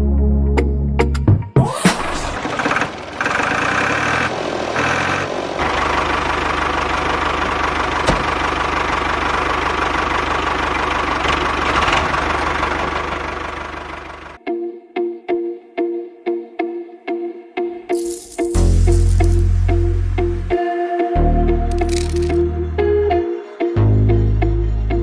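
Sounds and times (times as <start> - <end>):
small engine running: 2.2 - 14.4, 18.0 - 19.4, 21.7 - 22.4.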